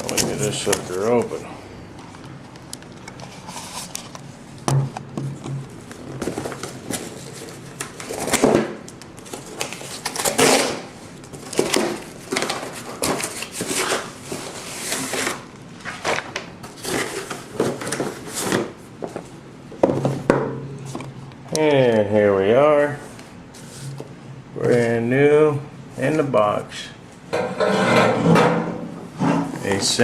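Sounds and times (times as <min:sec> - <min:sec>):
packaging rustling and ripping: 0:05.8 - 0:18.8.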